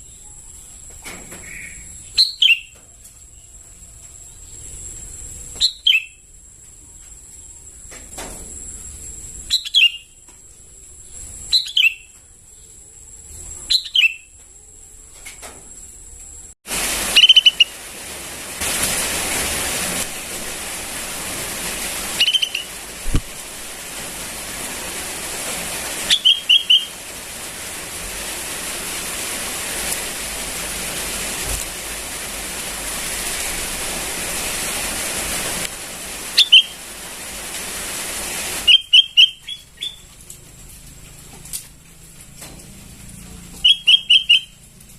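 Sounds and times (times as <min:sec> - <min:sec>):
bird chirping: 0:01.4 - 0:02.8, 0:05.6 - 0:06.2, 0:09.5 - 0:10.2, 0:11.1 - 0:12.8, 0:13.7 - 0:14.4, 0:17.2 - 0:17.7, 0:22.2 - 0:22.7, 0:26.1 - 0:26.9, 0:36.4 - 0:36.8, 0:38.7 - 0:40.1, 0:43.6 - 0:44.6
steady hiss: 0:14.5 - 0:44.9.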